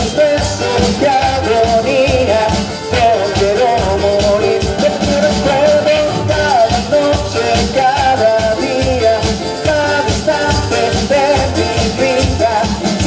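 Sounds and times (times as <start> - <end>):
latin band music: 0.0 - 13.0.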